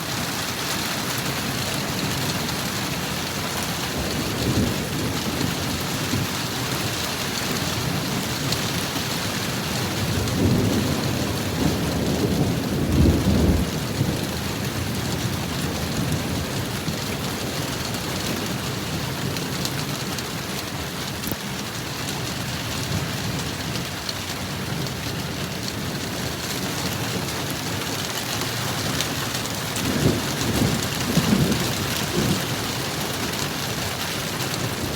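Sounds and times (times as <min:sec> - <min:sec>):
heavy rain: 0:00.0 - 0:34.9
thunder rumbling: 0:09.5 - 0:21.1, 0:28.7 - 0:34.9.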